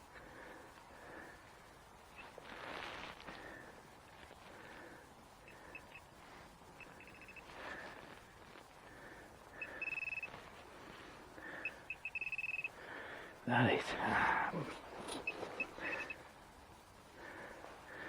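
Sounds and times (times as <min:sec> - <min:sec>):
soil rustling: 0:00.0 - 0:18.0
pinpointer beeping: 0:06.8 - 0:07.4, 0:09.6 - 0:10.3, 0:11.6 - 0:12.8.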